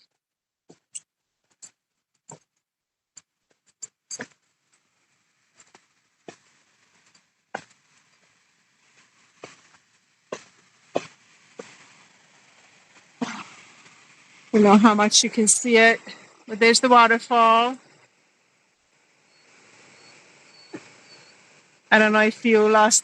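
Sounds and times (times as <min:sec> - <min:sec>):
waterfall rushing: 0:09.0 - 0:17.9.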